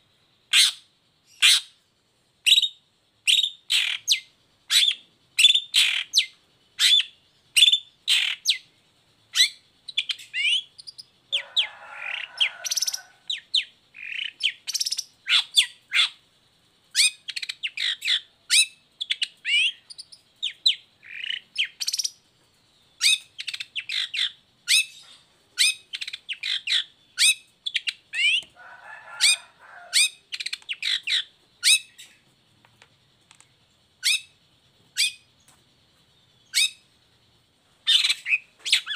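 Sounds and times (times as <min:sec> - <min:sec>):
bird rasping call: 0:28.2 - 0:31.8.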